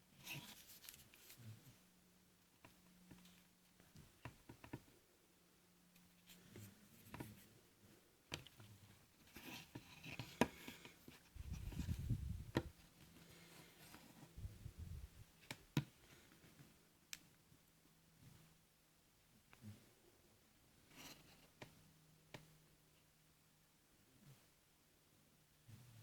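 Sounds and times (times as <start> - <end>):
low rumble of handling: 14.4 - 15.3.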